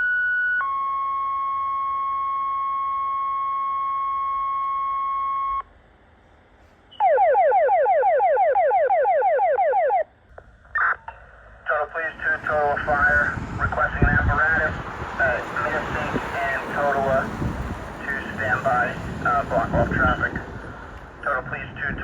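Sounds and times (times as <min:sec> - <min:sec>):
radio alert tones: 0:06.9 - 0:17.2, 0:18.0 - 0:20.4, 0:21.2 - 0:22.0.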